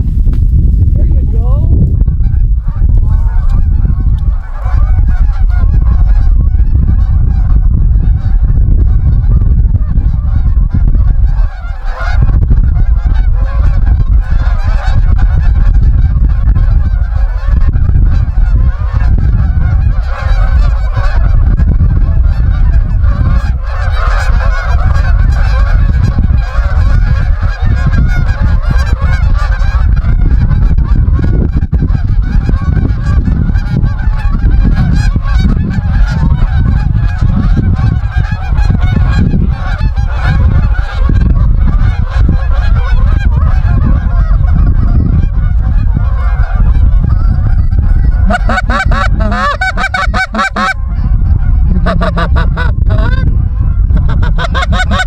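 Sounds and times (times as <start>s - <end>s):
loud low rumble: 0.0s - 55.0s
geese honking: 2.2s - 55.0s.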